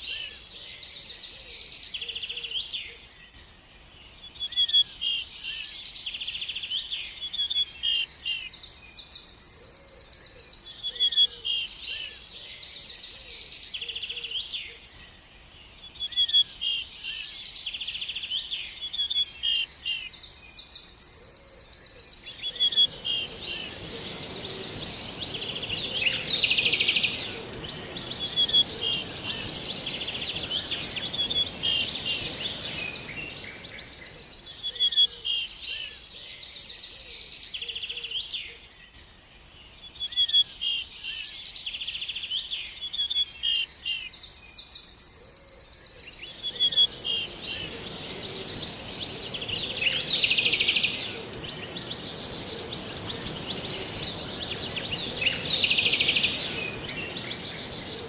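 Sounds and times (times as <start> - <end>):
steady hiss: 22.2 - 34.7, 46.0 - 58.0
songbird trilling and chirping: 22.2 - 34.9, 46.0 - 58.0.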